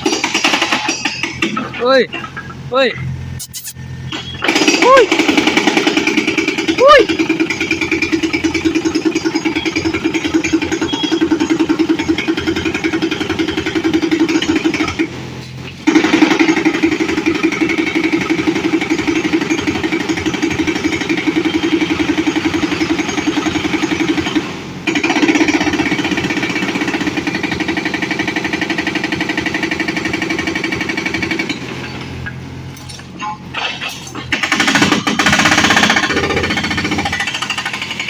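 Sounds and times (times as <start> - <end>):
excavator engine running: 0.0 - 38.0.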